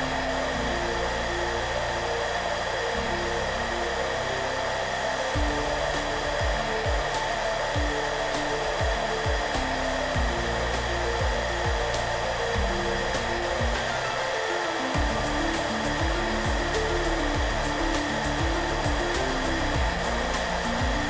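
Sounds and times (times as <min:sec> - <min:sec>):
hair dryer blowing: 0:00.0 - 0:21.0
soft background music: 0:00.0 - 0:21.0
low drum beat: 0:05.4 - 0:14.0, 0:15.0 - 0:21.0.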